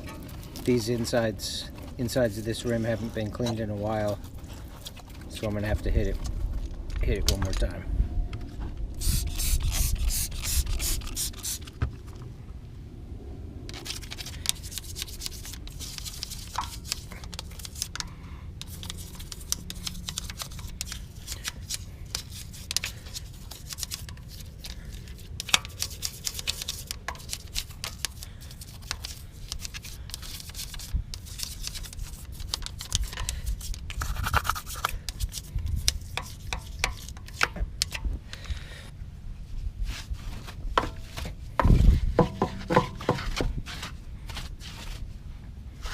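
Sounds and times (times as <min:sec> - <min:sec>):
brush scrubbing wheel rim: 0:13.8 - 0:18.0, 0:18.6 - 0:37.5, 0:39.9 - 0:44.0.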